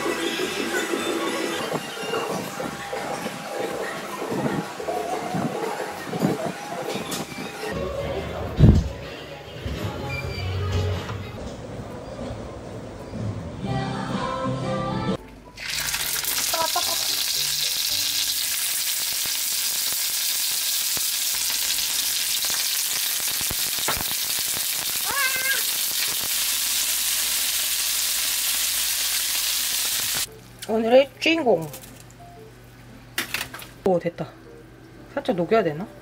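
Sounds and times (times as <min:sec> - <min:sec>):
food sizzling in frying pan: 0:15.6 - 0:30.3.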